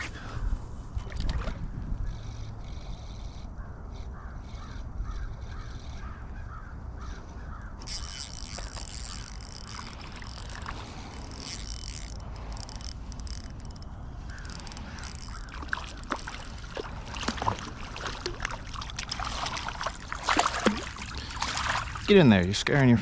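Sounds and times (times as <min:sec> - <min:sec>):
wind rumbling on microphone: 0:00.0 - 0:22.2
running river water: 0:07.3 - 0:23.0.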